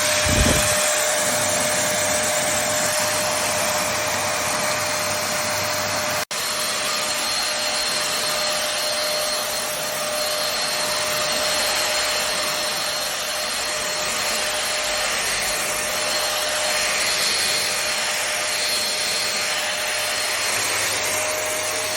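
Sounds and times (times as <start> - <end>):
stick vacuum cleaner running: 0.0 - 21.9.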